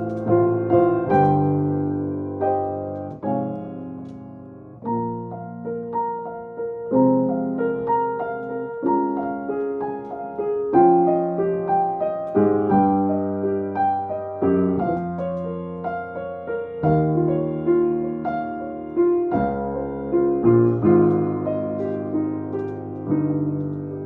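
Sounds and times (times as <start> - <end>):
slow solo piano: 0.0 - 24.0.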